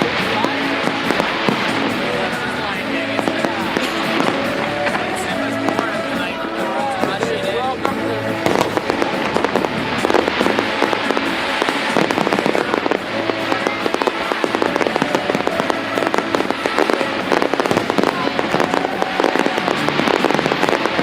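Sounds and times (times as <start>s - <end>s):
fireworks crackling: 0.0s - 21.0s
music playing: 0.0s - 21.0s.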